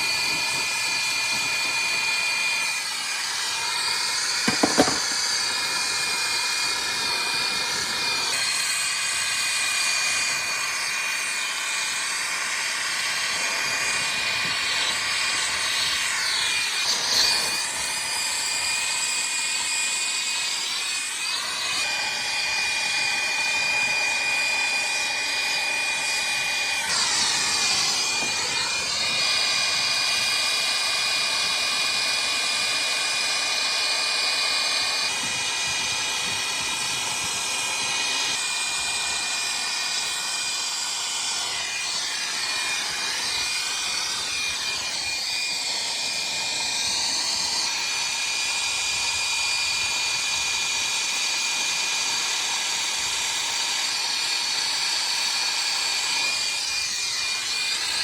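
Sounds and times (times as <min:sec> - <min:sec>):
brazing torch hissing: 0:00.0 - 0:06.1.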